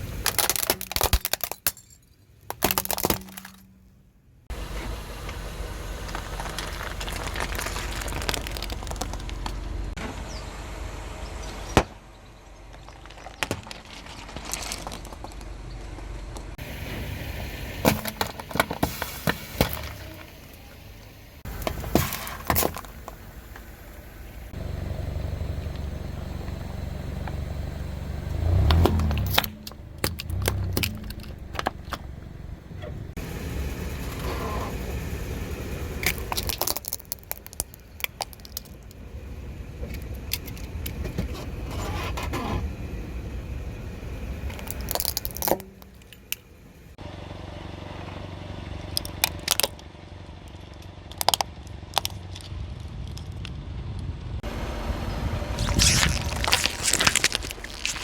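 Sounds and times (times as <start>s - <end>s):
tyre crushing crunchy objects: 0.0s - 1.8s, 2.4s - 3.7s, 5.9s - 9.9s, 12.6s - 15.6s, 17.8s - 20.8s, 21.4s - 23.4s, 28.3s - 32.0s, 36.0s - 39.0s, 44.5s - 46.0s, 55.6s - 58.0s
car engine humming: 0.0s - 58.0s.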